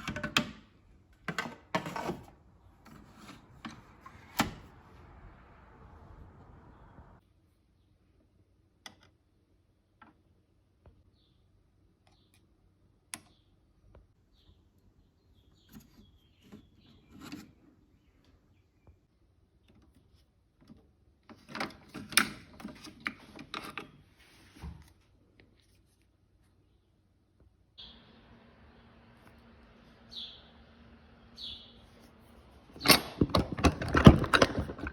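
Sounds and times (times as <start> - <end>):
clattering and rattling: 32.7 - 34.9
clicks and knocks: 32.8 - 34.9.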